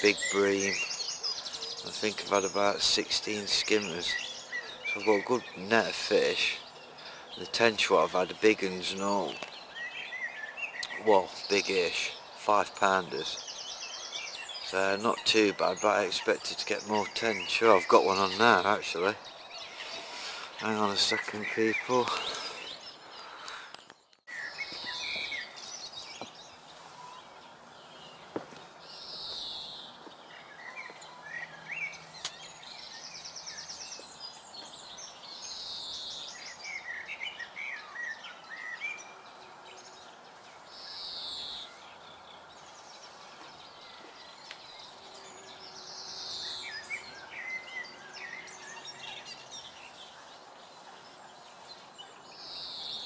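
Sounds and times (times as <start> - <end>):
low outdoor hiss: 0.0 - 23.7, 24.3 - 53.0
birds singing and calling: 0.0 - 53.0.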